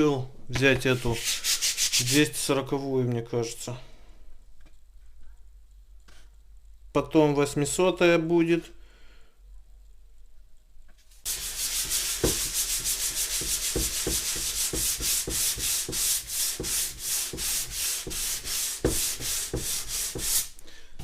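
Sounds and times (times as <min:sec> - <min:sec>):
sandpaper rubbing on plastic: 0:01.0 - 0:02.2, 0:11.3 - 0:20.6.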